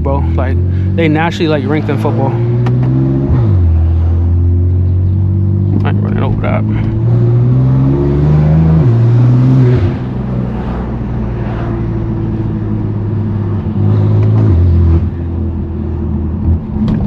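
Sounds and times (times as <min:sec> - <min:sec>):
loud car engine running: 0:00.0 - 0:17.0.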